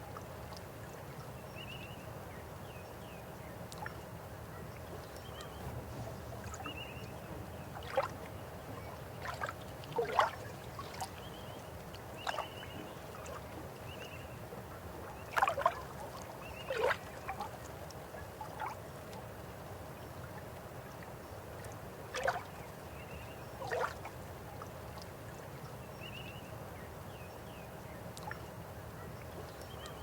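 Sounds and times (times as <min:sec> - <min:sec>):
river water running: 0:00.0 - 0:30.0
water gurgles and splashes: 0:09.1 - 0:11.3.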